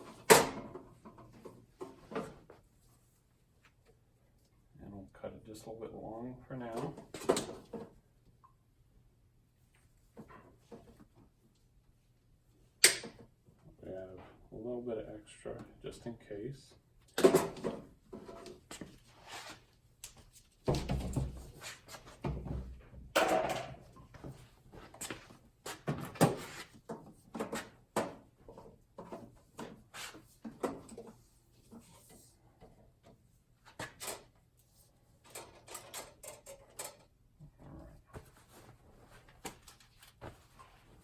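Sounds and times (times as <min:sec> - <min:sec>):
hands handling cable and tools: 0:38.2 - 0:41.0.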